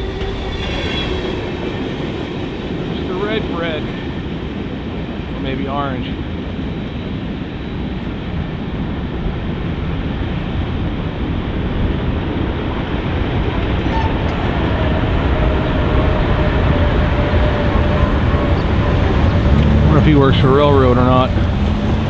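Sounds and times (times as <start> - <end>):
freight train wheels on rail: 6.1 - 22.0.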